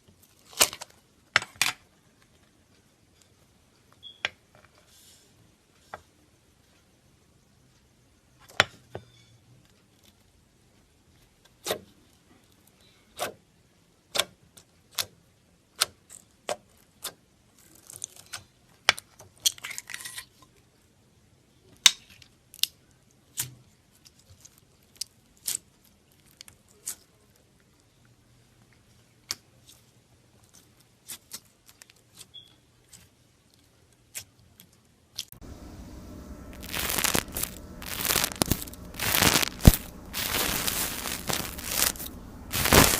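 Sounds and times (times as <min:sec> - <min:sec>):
slime crackling: 0:36.4 - 0:42.9.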